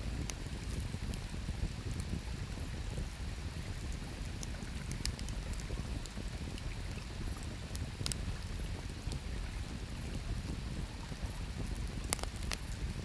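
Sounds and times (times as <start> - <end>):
campfire crackling and popping: 0.0 - 9.4, 10.0 - 13.0.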